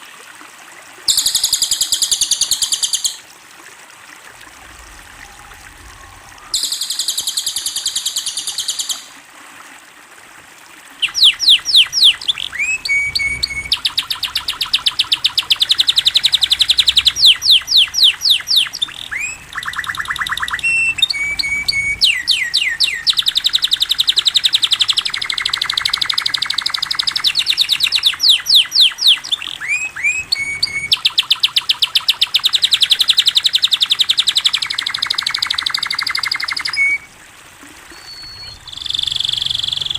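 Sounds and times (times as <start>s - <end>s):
songbird singing trills and chirps: 1.1s - 3.2s, 11.0s - 37.1s, 37.9s - 39.9s.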